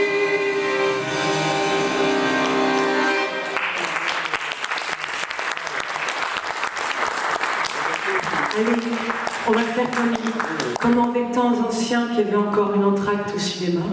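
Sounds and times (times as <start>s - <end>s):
audience clapping: 2.4s - 11.2s.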